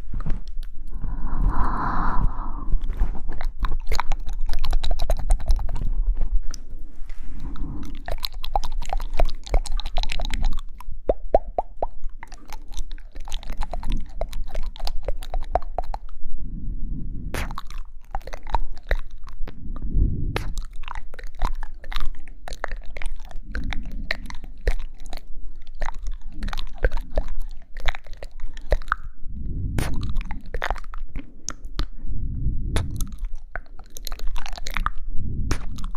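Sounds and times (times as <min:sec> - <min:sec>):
wet mouth clicks and smacks: 0:00.0 - 0:06.8, 0:07.4 - 0:16.2, 0:17.4 - 0:29.2, 0:29.8 - 0:32.0, 0:32.7 - 0:35.9.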